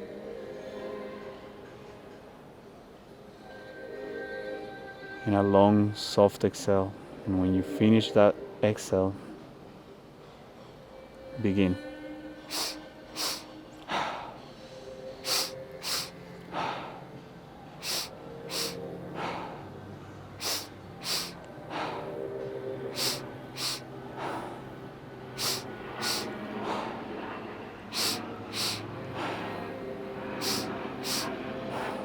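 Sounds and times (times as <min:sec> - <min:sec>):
faint background hum: 0:00.0 - 0:32.0
forceful breaths through nose: 0:12.4 - 0:32.0.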